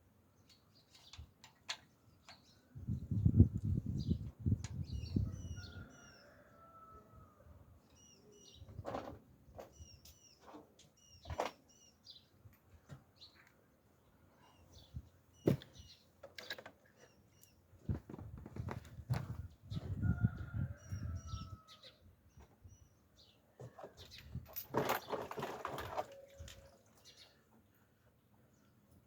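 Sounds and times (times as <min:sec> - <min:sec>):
small birds chirping: 0:00.4 - 0:06.5, 0:07.8 - 0:18.0, 0:26.4 - 0:29.0.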